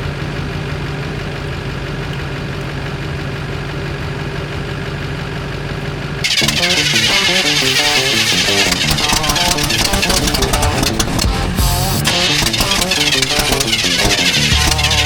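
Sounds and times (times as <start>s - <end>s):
truck engine idling: 0.0s - 15.0s
plucked guitar music: 6.2s - 15.0s.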